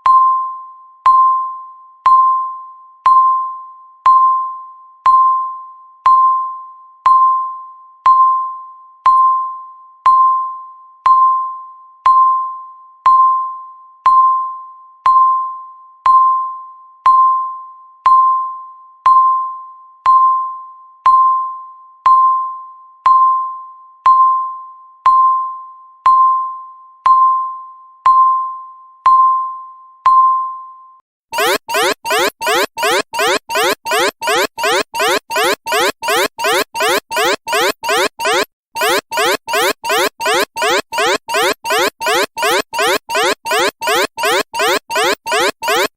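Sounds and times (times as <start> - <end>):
timer beeping chime tone: 31.4 - 45.9.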